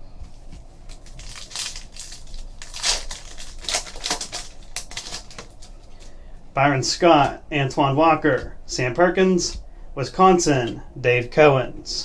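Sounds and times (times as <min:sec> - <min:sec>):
wrappers crinkling: 0:00.3 - 0:06.6
cards rustling and snapping: 0:00.5 - 0:06.2.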